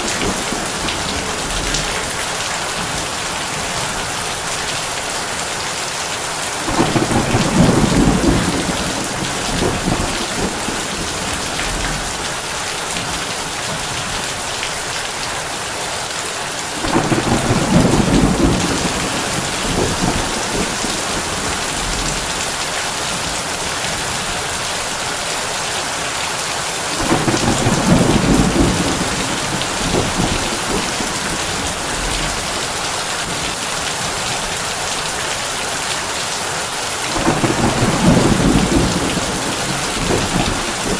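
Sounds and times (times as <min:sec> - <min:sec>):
low thunder rumbles: 0:00.0 - 0:04.4, 0:06.6 - 0:14.1, 0:16.8 - 0:24.2, 0:26.9 - 0:34.1, 0:37.1 - 0:40.9
heavy rain on a tin roof: 0:00.0 - 0:40.9.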